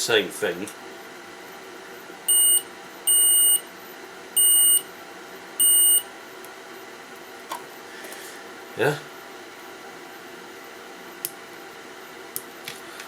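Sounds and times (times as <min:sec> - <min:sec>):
multimeter beeping: 0:02.3 - 0:03.6, 0:04.4 - 0:04.8, 0:05.6 - 0:06.1.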